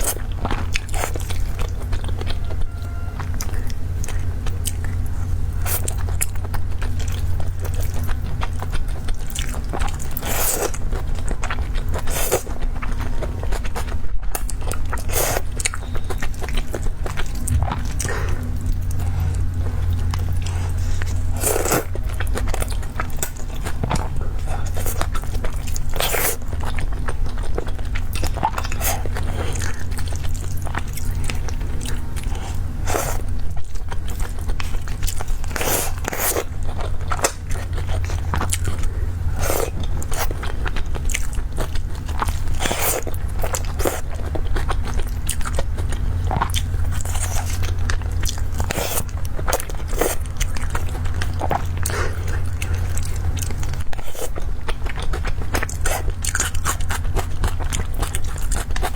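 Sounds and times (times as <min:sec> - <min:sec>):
person chewing and crunching food: 0:00.0 - 0:58.9
steady low hum: 0:00.0 - 0:58.9.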